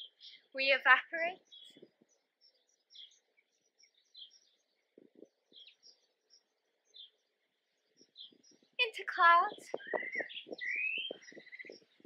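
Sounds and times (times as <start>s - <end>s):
faint bird chirps: 0.0s - 12.0s
faint low thuds: 4.9s - 5.8s.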